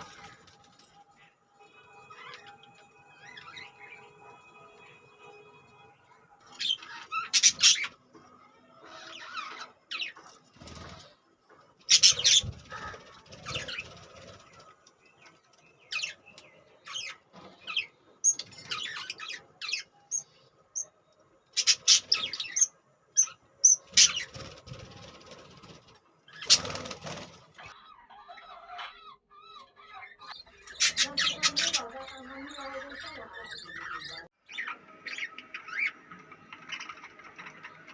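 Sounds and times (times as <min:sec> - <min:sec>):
wing fluttering and scuffling: 0:00.0 - 0:01.0, 0:10.1 - 0:16.2, 0:23.8 - 0:27.7
budgerigars chirping: 0:06.6 - 0:07.9, 0:11.9 - 0:14.0, 0:21.6 - 0:24.5, 0:26.4 - 0:36.0.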